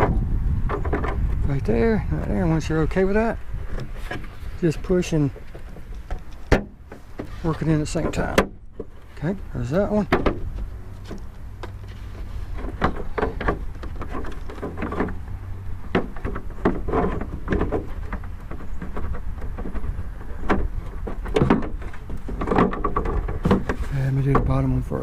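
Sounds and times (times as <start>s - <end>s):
plastic knocks and clicks: 15.9s - 24.6s.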